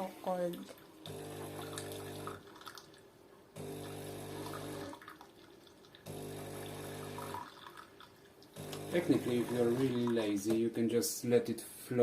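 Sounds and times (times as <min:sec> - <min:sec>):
coffee machine pump humming: 0:00.6 - 0:02.6, 0:03.6 - 0:05.2, 0:06.0 - 0:10.6
water running out: 0:00.7 - 0:10.6.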